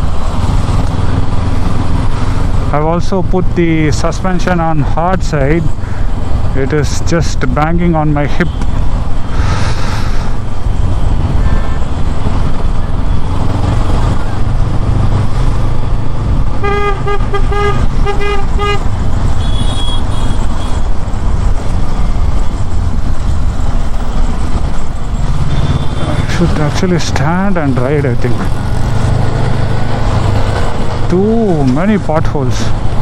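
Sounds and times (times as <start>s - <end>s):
motorcycle engine rumble: 0.0s - 33.0s
vehicle horn honking: 16.6s - 20.8s, 25.4s - 26.1s.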